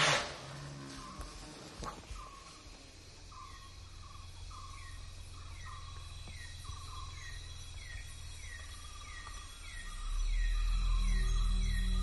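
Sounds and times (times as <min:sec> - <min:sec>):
insect hiss: 0:00.0 - 0:12.0
bird calling: 0:03.3 - 0:12.0.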